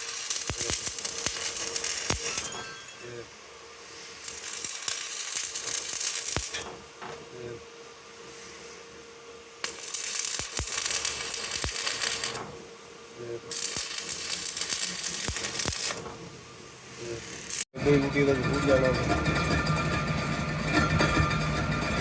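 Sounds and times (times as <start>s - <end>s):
arc welding crackling hiss: 0.0s - 7.6s, 9.6s - 17.7s.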